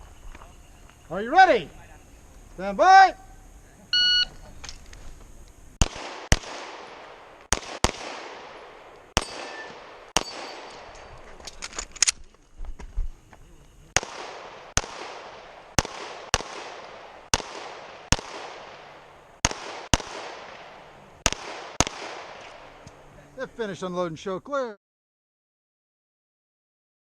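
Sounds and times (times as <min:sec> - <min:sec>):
pistol shots: 0:05.8 - 0:11.2, 0:14.0 - 0:22.9.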